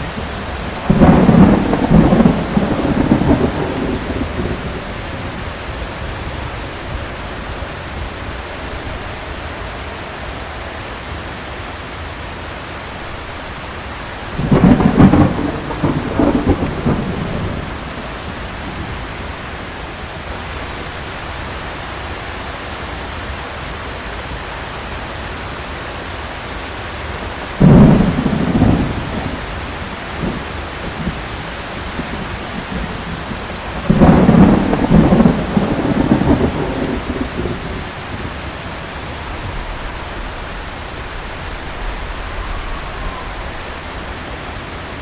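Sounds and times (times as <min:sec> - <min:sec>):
thunder claps rumbling: 0:00.0 - 0:09.1, 0:14.0 - 0:21.6, 0:27.2 - 0:45.0
heavy rain hissing: 0:00.0 - 0:45.0.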